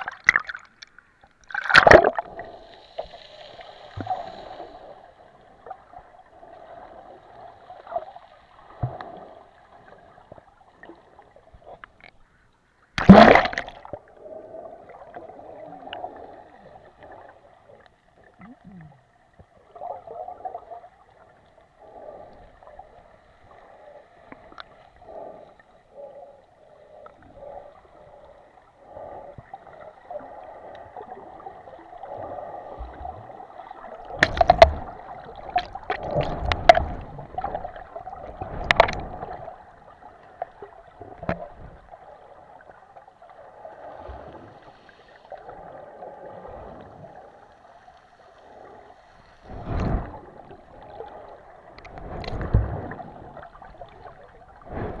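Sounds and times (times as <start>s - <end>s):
sharp knocks and splashes: 1.5s - 2.3s, 13.0s - 13.8s, 34.1s - 39.5s, 51.8s - 55.0s
sea water washing at shore: 1.5s - 8.0s, 13.0s - 14.1s, 28.9s - 42.8s, 43.4s - 55.0s.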